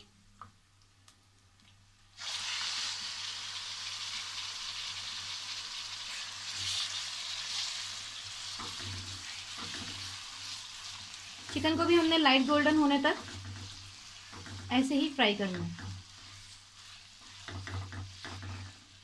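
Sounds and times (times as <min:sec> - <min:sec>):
chicken sizzling in oil: 0:02.1 - 0:19.0
spatula stirring: 0:06.1 - 0:19.0.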